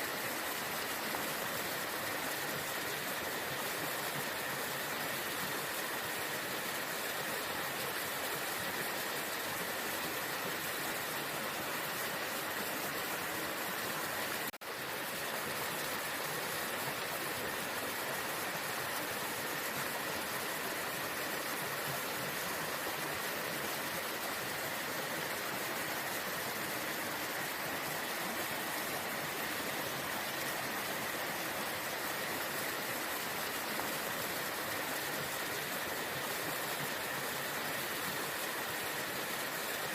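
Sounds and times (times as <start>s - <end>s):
waterfall rushing: 9.0s - 39.9s.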